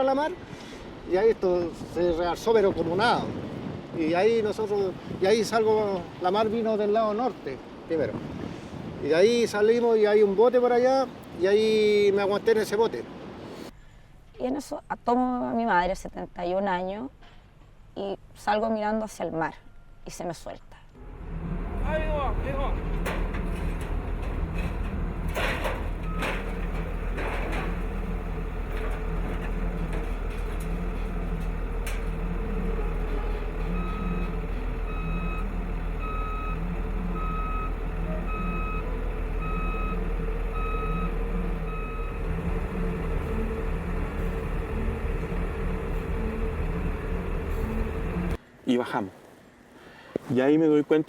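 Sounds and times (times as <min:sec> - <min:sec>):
heavy vehicle engine running: 0:21.0 - 0:48.4
reversing alarm beeping: 0:24.6 - 0:28.9, 0:31.5 - 0:48.4.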